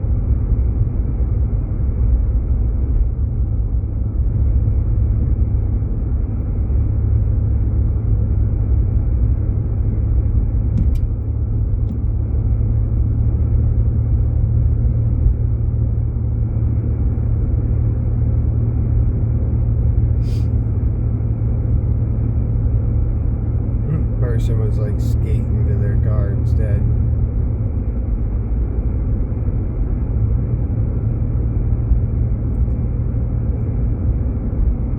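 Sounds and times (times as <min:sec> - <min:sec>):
engine and tyre rumble in car: 0:00.0 - 0:34.9.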